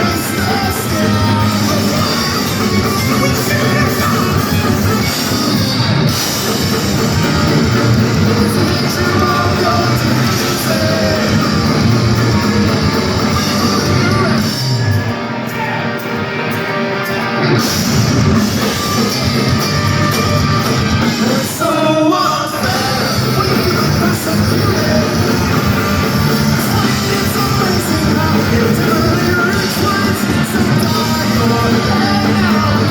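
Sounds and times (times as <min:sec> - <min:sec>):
person singing: 0:00.0 - 0:14.8, 0:21.0 - 0:32.9
distorted electric guitars: 0:00.0 - 0:32.9
drum kit: 0:00.0 - 0:32.9.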